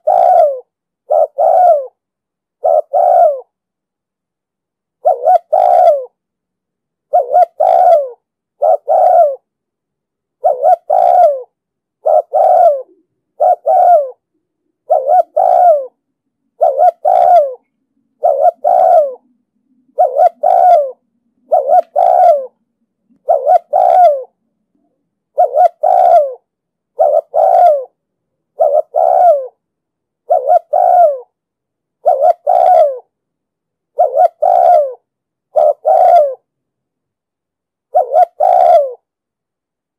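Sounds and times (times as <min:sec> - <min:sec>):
dove cooing: 0:00.0 - 0:02.0, 0:02.6 - 0:03.5, 0:05.0 - 0:06.2, 0:07.1 - 0:09.5, 0:10.4 - 0:24.4, 0:25.3 - 0:29.6, 0:30.2 - 0:31.4, 0:32.0 - 0:33.1, 0:33.9 - 0:36.5, 0:37.9 - 0:39.1.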